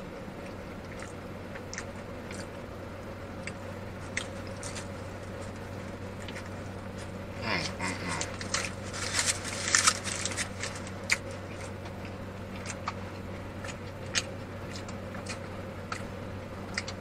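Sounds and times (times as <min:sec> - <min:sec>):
man chewing with wet smacking: 0:00.0 - 0:08.9, 0:09.7 - 0:17.0
steady low hum: 0:00.0 - 0:17.0.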